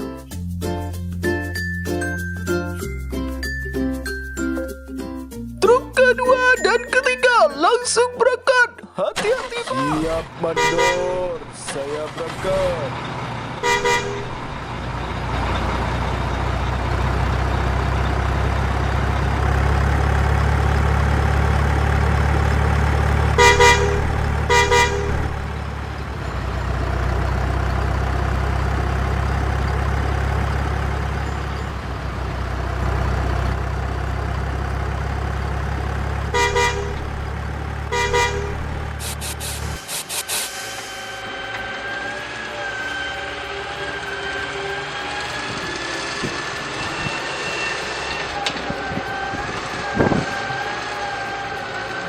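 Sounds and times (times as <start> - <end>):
truck engine rumbling: 0.0 - 52.0
truck horn toots: 9.7 - 11.6, 13.6 - 15.0, 23.1 - 27.1, 36.2 - 39.3.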